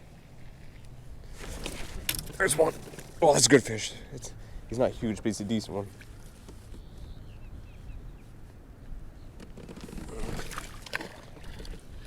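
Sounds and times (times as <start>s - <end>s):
water splashing: 10.0s - 12.0s.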